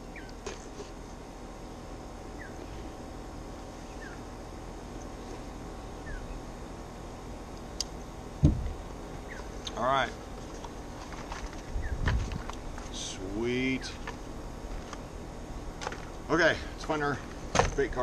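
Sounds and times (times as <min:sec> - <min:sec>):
small bird chirping: 0:00.0 - 0:00.4, 0:02.3 - 0:02.7, 0:03.8 - 0:04.3, 0:06.0 - 0:06.4, 0:09.2 - 0:09.7, 0:11.6 - 0:12.1.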